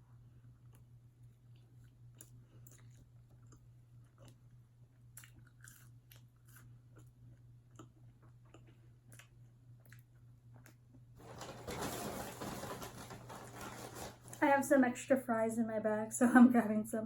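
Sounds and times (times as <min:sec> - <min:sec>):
low steady hum: 0:00.0 - 0:17.0
chewing crispy food: 0:00.6 - 0:11.0
takeout bag rustling: 0:11.2 - 0:14.5.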